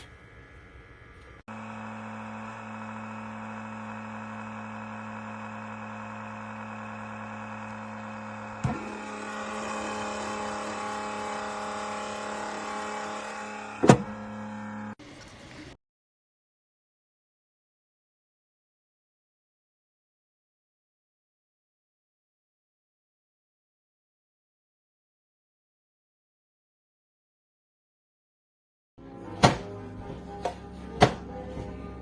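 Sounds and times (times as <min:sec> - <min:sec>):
filament dryer fans humming: 0:29.0 - 0:32.0.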